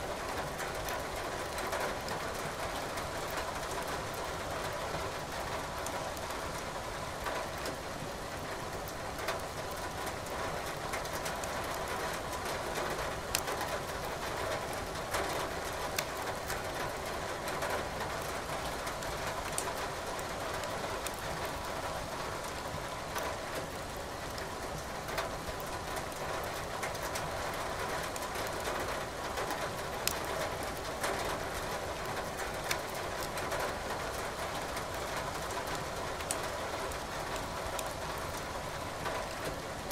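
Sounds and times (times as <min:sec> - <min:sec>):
wood fire crackling: 0:13.3 - 0:13.5, 0:30.0 - 0:30.8.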